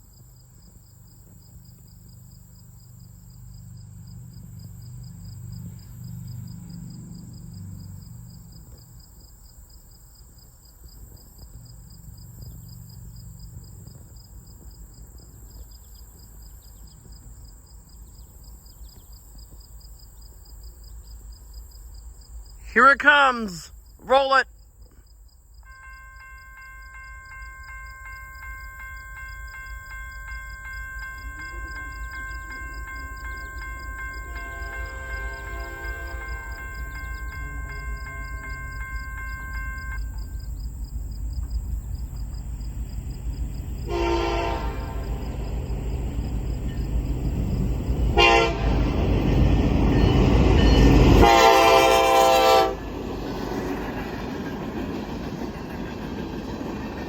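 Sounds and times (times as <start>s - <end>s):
locomotive horn blasts: 25.7s - 40.4s, 43.8s - 45.3s, 48.2s - 49.0s, 49.9s - 52.9s
freight train rumble: 25.7s - 57.0s.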